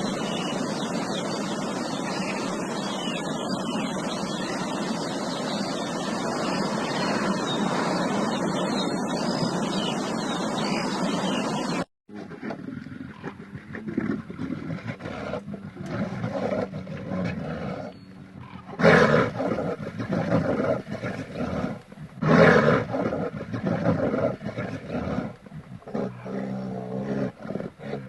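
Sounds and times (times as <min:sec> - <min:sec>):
quieter animal calls: 0:12.2 - 0:28.0
large animal roaring: 0:12.4 - 0:28.0.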